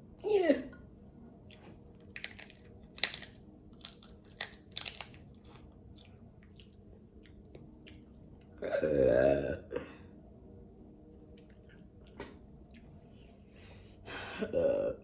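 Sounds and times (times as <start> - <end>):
chewing smacks: 1.4 - 8.6, 11.2 - 13.2
loud burp: 8.6 - 9.9, 14.4 - 15.0.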